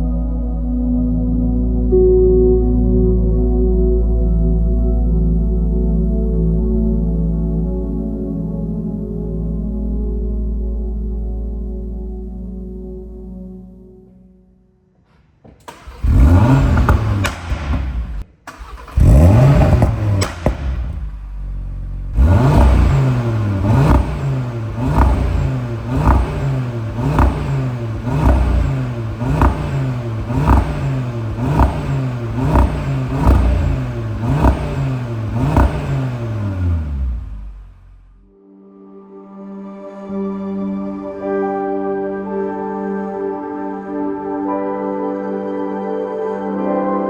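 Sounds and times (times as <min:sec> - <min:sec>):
exhaust cracking: 0:15.5 - 0:38.2
car engine revving: 0:15.6 - 0:38.2.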